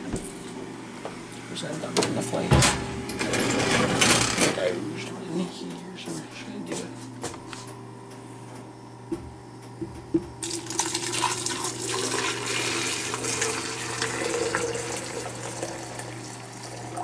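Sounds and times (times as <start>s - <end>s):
water pouring into carafe: 10.4s - 17.0s.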